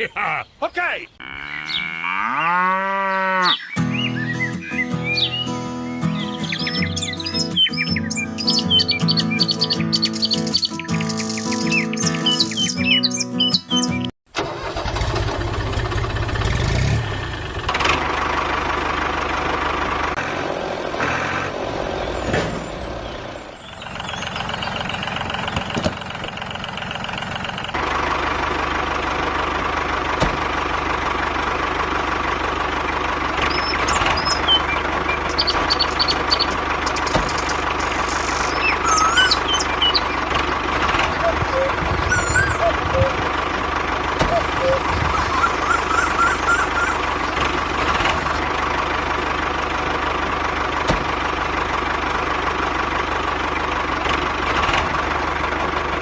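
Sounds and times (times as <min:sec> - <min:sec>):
birds chirping: 0:00.0 - 0:17.6, 0:21.7 - 0:26.8, 0:32.9 - 0:43.4, 0:44.2 - 0:47.6
tractor motor running: 0:14.3 - 0:20.3, 0:23.0 - 0:56.0.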